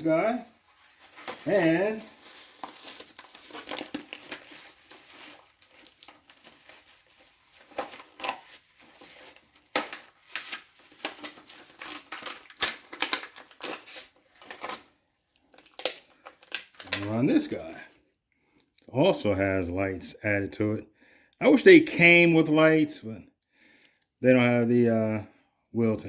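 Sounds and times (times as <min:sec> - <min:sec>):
packaging crinkling: 0:00.4 - 0:17.6.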